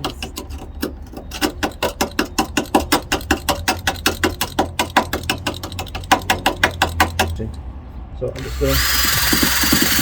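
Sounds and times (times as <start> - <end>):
power tool clicking: 8.4 - 10.0.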